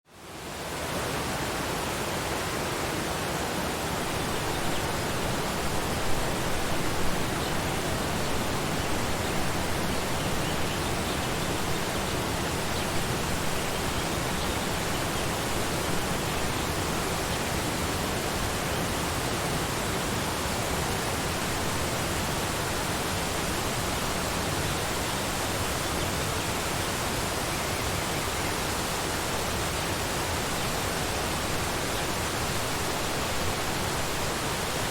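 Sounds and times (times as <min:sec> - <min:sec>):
waterfall rushing: 0:00.3 - 0:34.9.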